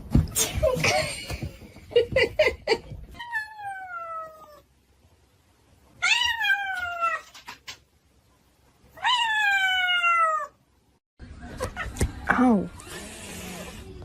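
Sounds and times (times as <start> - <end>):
cat meowing: 9.0 - 10.6.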